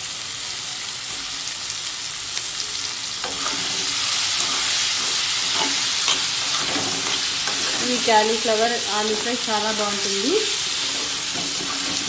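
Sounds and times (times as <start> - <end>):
vegetables sizzling in oil: 0.0 - 12.0
metal spatula scraping pan: 3.2 - 8.1, 10.7 - 12.0.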